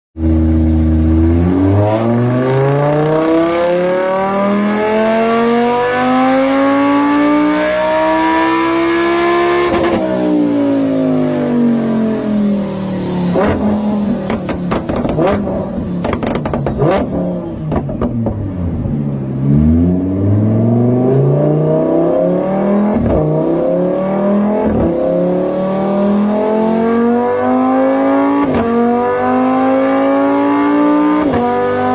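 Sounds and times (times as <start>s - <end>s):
sports car engine accelerating: 0.2s - 31.9s
exhaust crackles and pops: 13.4s - 18.4s.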